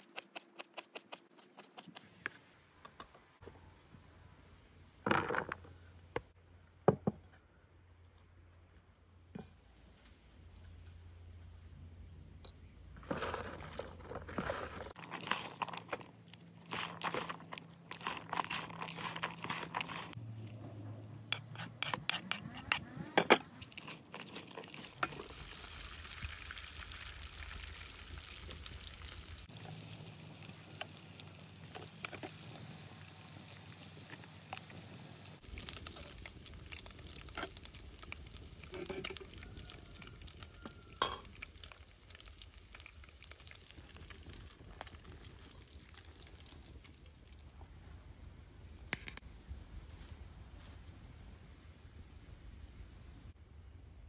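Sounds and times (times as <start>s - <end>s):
onions tossed in plastic bowl: 13.1s - 20.2s
meat sizzling in hot oil: 25.2s - 46.9s
metal ladle clinking: 41.0s - 41.3s.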